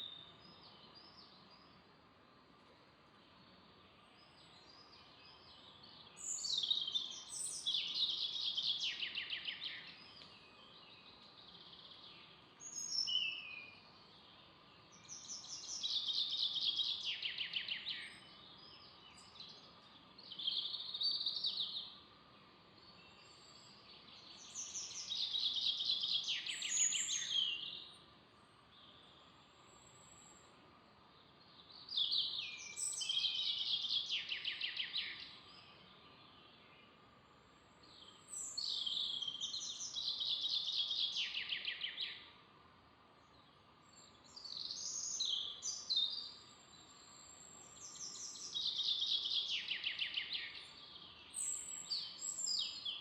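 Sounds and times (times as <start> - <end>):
faint background hiss: 0.0 - 53.0
songbird singing: 0.0 - 53.0.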